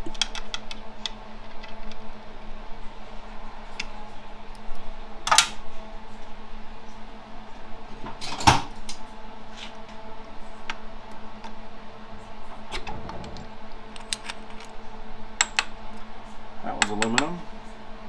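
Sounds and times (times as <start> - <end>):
steady low hum: 8.8 - 16.8
metal parts clinking: 14.0 - 14.7.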